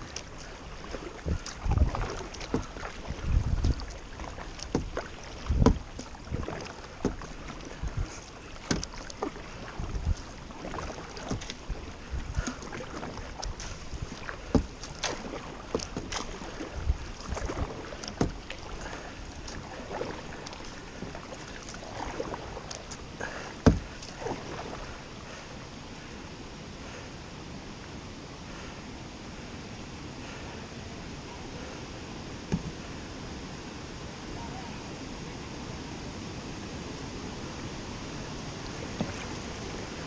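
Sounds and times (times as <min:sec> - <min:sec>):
kayak knocks and thumps: 0:00.0 - 0:24.9, 0:32.5 - 0:33.0, 0:38.6 - 0:39.8
paddle strokes splashing in water: 0:00.0 - 0:26.2, 0:32.4 - 0:33.2, 0:36.5 - 0:40.0.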